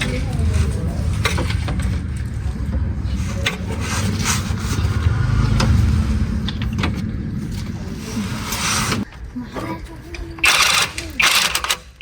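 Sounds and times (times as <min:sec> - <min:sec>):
motor rumbling: 0:00.0 - 0:09.1.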